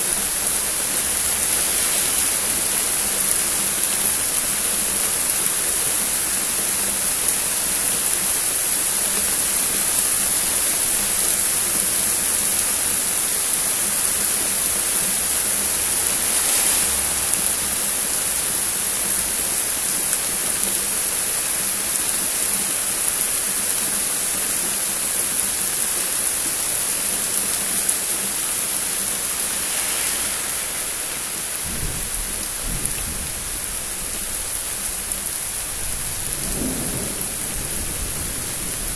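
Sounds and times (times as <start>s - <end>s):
heavy rain falling: 0.0s - 38.9s
low thunder rumble: 31.6s - 38.9s.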